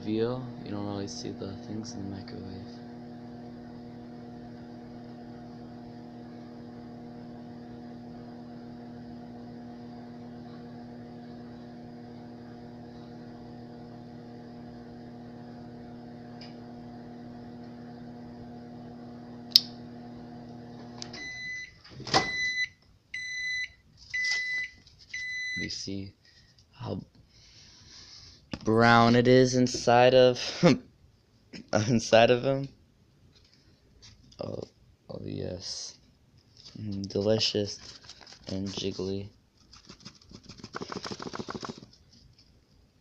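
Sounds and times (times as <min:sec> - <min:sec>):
microwave oven humming: 0:00.0 - 0:26.0
microwave high beeps: 0:21.1 - 0:25.7.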